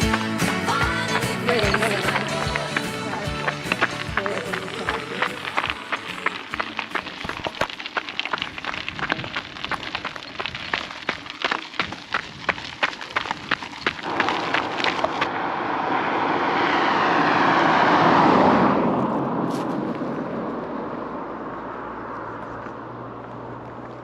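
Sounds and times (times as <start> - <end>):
car passing: 0.0 - 10.2, 14.0 - 24.0
running footsteps: 0.0 - 15.3.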